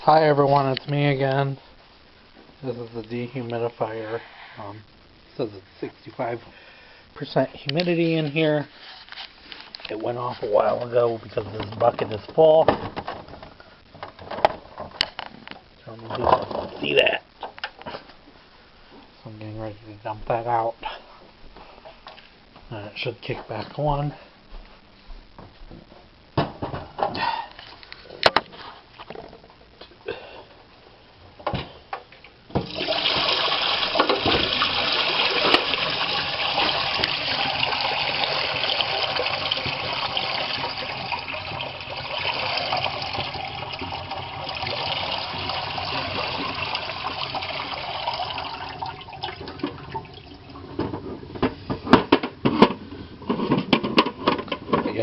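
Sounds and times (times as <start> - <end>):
plastic clatter: 11.5 - 16.8, 50.7 - 55.0
water pouring from bucket: 32.6 - 50.8.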